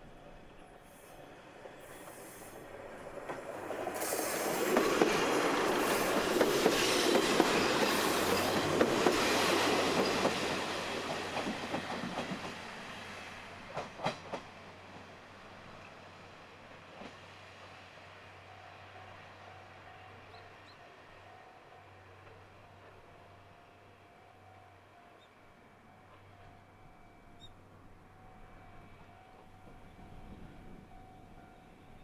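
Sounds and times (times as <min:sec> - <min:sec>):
diesel railcar passing: 0:00.0 - 0:32.0
wheels clacking over rail joints: 0:01.6 - 0:12.7.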